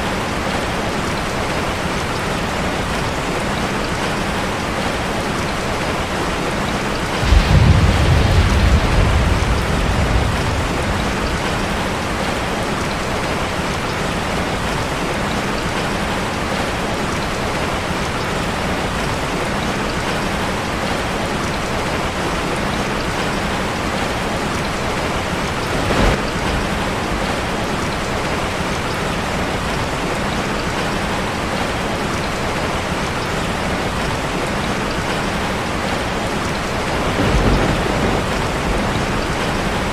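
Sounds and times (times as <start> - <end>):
heavy rain on metal roof: 0.0 - 39.9
thunder rolling: 7.0 - 13.6, 24.7 - 28.1, 36.7 - 39.9.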